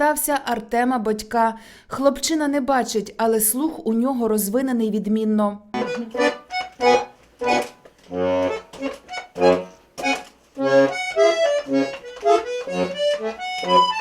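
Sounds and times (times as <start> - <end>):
accordion tune: 5.8 - 14.0.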